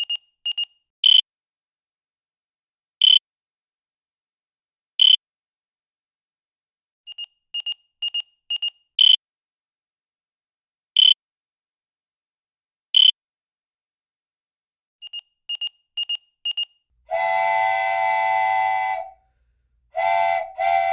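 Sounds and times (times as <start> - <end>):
short high beeps: 0.0 - 0.7, 7.1 - 9.2, 15.0 - 16.7
fainter beeps: 0.0 - 0.8, 7.1 - 9.2, 15.0 - 16.7
long horn-like tone: 17.1 - 19.2, 19.9 - 20.9.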